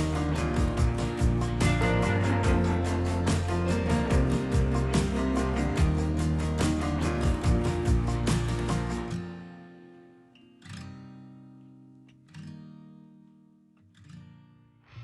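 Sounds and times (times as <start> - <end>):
strummed guitar chords ringing: 0.0 - 10.6
acoustic guitar music: 0.0 - 15.0.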